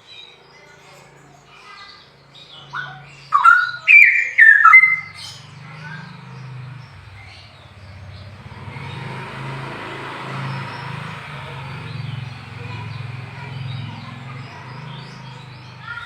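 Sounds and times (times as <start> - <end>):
faint bird chirps: 0.0 - 9.1
vehicle passing rushing noise: 4.6 - 16.0
low engine hum: 4.8 - 16.0.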